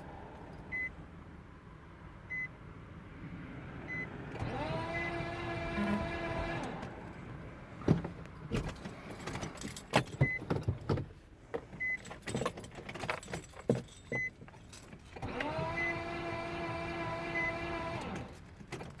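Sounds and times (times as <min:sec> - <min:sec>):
car engine cranking whine: 0:03.9 - 0:07.2, 0:15.2 - 0:18.5.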